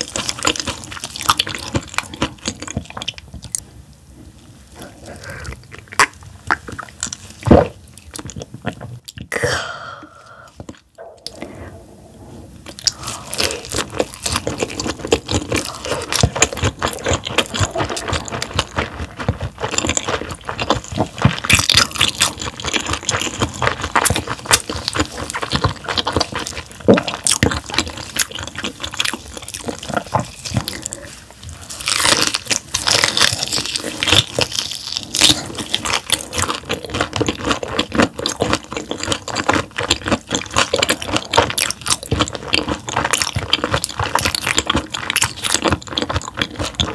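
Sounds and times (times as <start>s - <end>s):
chewing with sharp mouth clicks: 12.7s - 46.9s.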